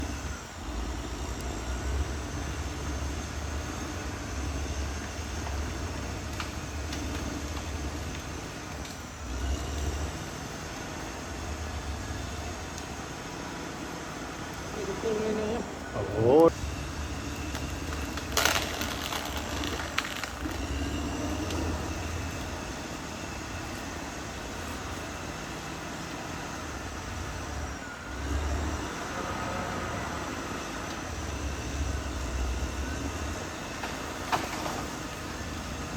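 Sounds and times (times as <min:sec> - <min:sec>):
bulldozer engine rumbling: 0:00.0 - 0:35.9.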